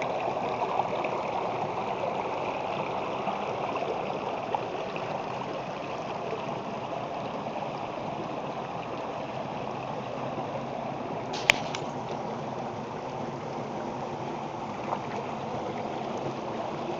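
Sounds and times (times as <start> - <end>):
stream water rushing: 0.0 - 16.9
sharp click: 11.4 - 12.0.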